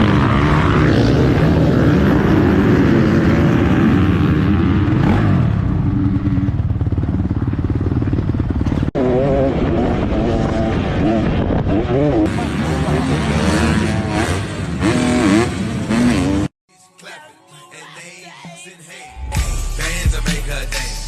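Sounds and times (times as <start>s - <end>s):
motorbike engine running: 4.5s - 12.2s.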